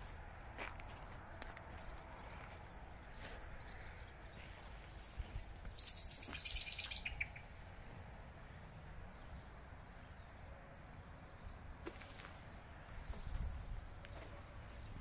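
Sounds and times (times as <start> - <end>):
small bird trilling: 5.8 - 7.5.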